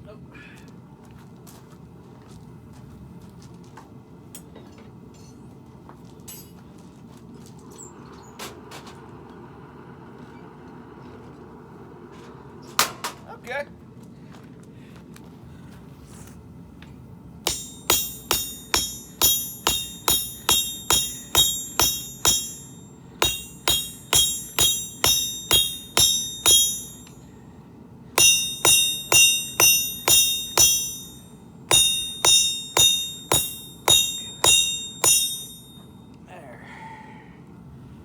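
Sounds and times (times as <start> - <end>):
hammer striking steel on anvil: 17.5 - 27.3, 28.2 - 35.9.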